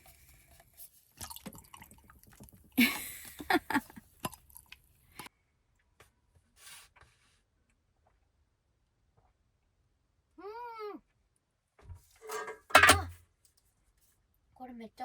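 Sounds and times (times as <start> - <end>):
person chewing food: 3.9 - 4.9.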